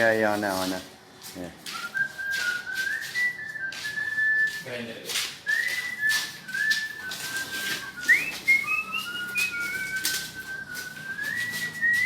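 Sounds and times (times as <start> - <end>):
person whistling a tune: 1.7 - 4.8, 5.4 - 12.0.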